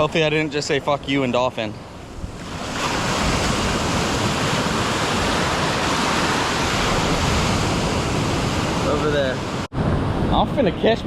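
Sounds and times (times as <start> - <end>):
ocean surf washing on beach: 0.0 - 11.0.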